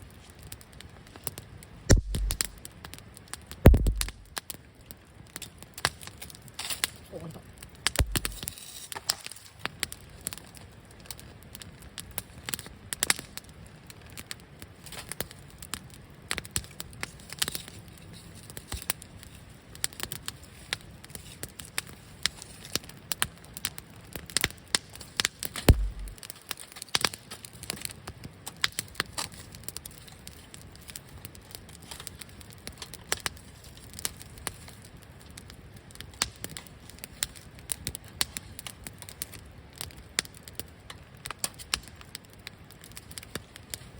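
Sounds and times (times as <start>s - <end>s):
campfire crackling and popping: 0.0s - 43.9s
low hiss of fire: 0.0s - 43.9s.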